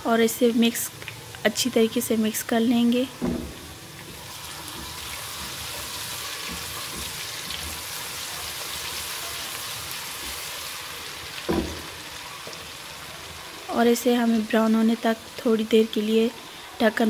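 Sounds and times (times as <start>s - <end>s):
onions sizzling in hot fat: 0.1s - 17.0s
spatula stirring in a pot: 3.8s - 10.7s.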